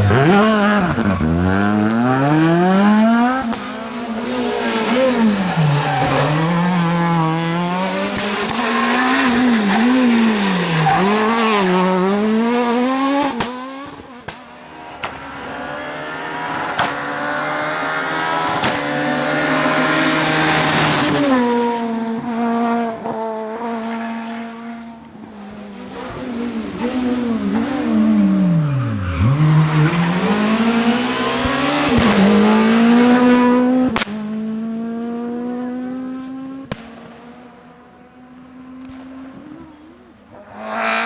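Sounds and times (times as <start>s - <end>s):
rally car engine revving: 0.0s - 41.0s.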